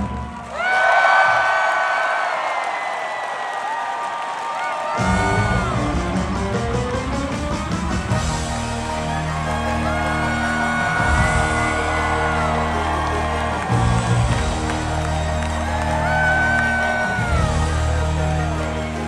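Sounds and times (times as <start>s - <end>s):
audience whooping and cheering: 0.0s - 19.0s
loud live band music: 5.0s - 19.0s.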